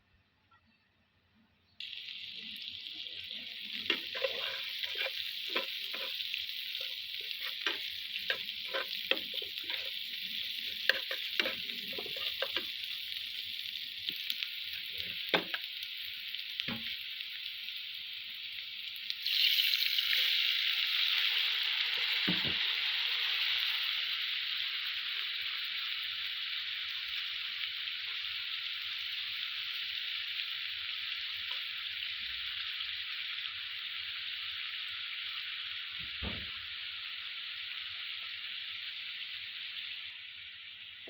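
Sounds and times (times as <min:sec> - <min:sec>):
food sizzling in hot oil: 0:01.8 - 0:41.0
spatula scraping a pan: 0:03.7 - 0:12.8.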